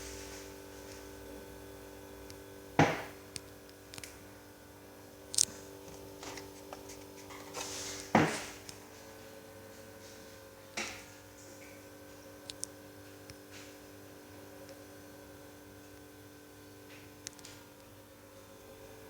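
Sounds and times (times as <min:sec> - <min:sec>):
ceiling fan motor hum: 0:00.0 - 0:19.0
loud sharp knocks: 0:02.8 - 0:03.2.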